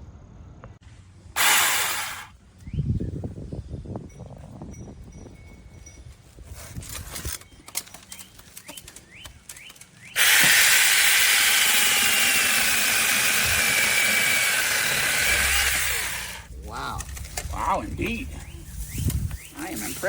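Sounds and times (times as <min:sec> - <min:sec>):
chainsaw whining cutting wood: 0:01.4 - 0:02.3, 0:10.2 - 0:16.5.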